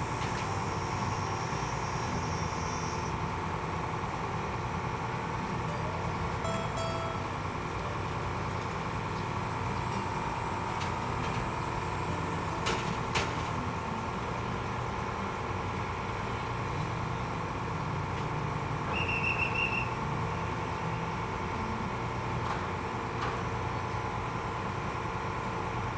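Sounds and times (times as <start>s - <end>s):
ferry diesel engine droning: 0.0s - 25.9s.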